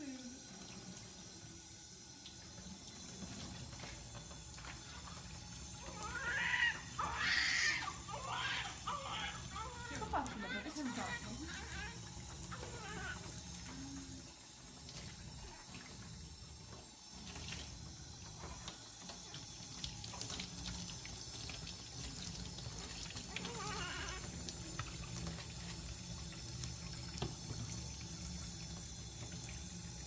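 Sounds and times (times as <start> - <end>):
water running from a tap: 0.0 - 30.0
baby crying: 5.8 - 13.3, 23.4 - 24.2.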